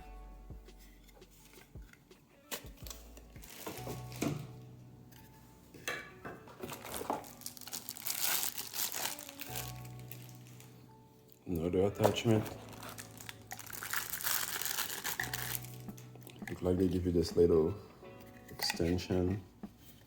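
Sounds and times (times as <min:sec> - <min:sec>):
soft background music: 0:00.0 - 0:20.0
plastic packaging crinkling: 0:02.5 - 0:04.5, 0:06.6 - 0:10.7, 0:11.4 - 0:17.4.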